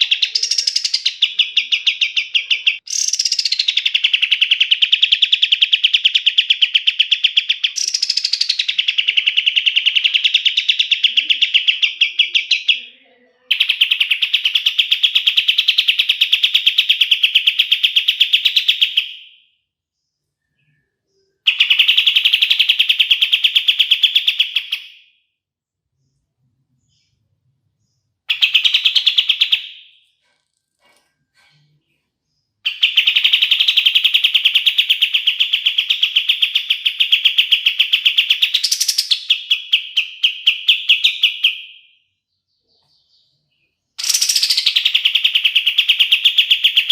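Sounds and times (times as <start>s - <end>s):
bird rapid rattling song: 0.0s - 12.8s, 13.5s - 19.4s, 21.4s - 25.1s, 28.2s - 41.8s, 42.8s - 46.9s.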